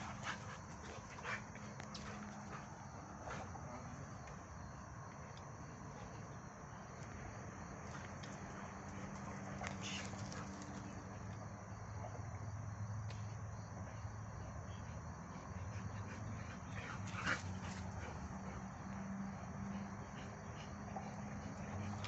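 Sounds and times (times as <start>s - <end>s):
dog paws pattering and scuffling: 0.0s - 4.4s, 7.8s - 11.4s
dogs playing: 0.0s - 12.4s, 13.7s - 22.0s
insects chirring: 0.0s - 22.0s.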